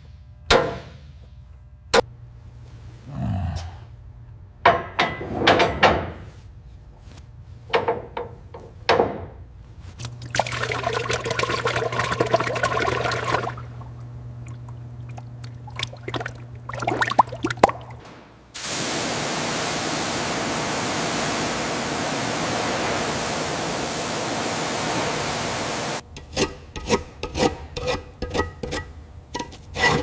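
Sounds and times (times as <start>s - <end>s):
low hum: 6.3s - 26.0s
liquid pouring and splashing: 10.1s - 18.0s, 18.6s - 26.0s.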